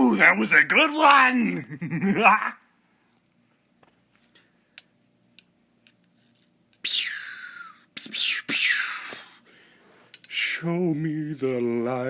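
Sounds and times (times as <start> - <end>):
man making hissing noises: 6.8 - 9.5.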